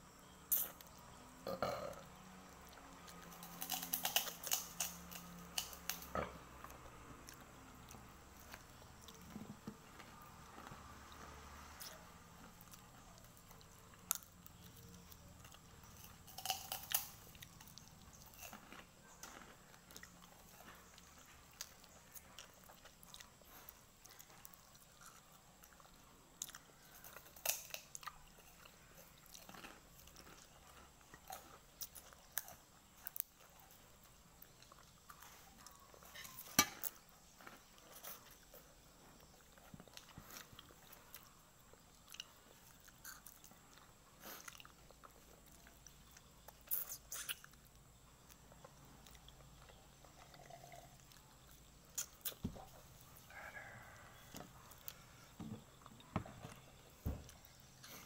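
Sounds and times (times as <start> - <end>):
crunchy chewing of fried chicken: 0.1 - 58.0.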